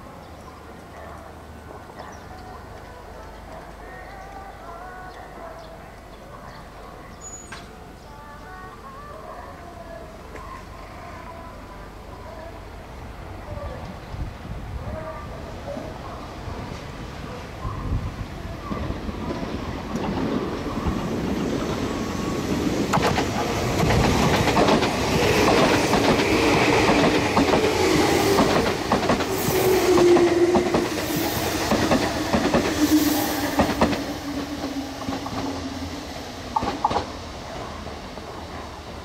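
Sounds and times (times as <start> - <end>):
train wheels clacking over rail joints: 22.9 - 32.9, 36.5 - 37.1
train whine lowering in pitch: 26.2 - 36.7.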